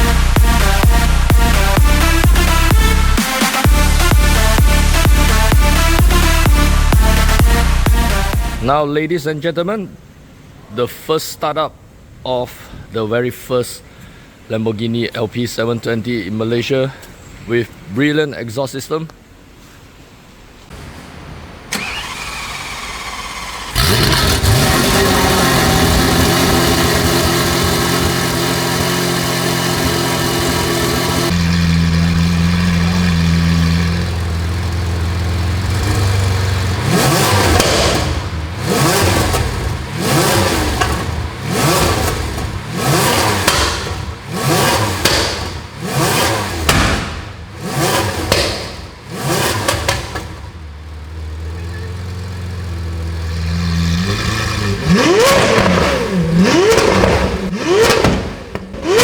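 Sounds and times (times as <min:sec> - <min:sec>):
sports car engine revving: 0:00.0 - 0:08.8, 0:21.7 - 0:59.0.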